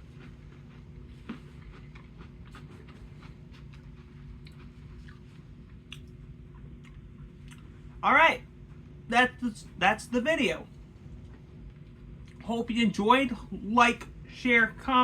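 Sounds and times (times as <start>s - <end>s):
person chewing crunchy candy: 0.0s - 7.7s.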